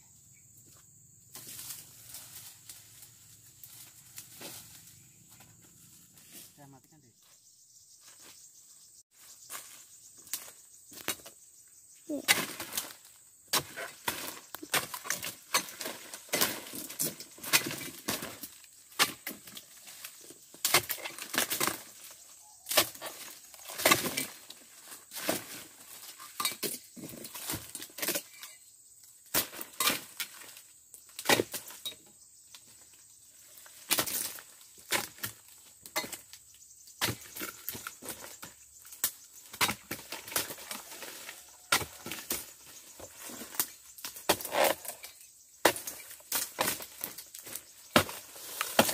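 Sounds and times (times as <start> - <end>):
fronds rustling and splintering: 1.3 - 6.6, 12.1 - 28.6, 32.6 - 36.4, 37.0 - 48.9
chisel blade chopping fronds: 12.1 - 19.7, 37.0 - 38.3, 39.0 - 45.0, 45.6 - 48.9.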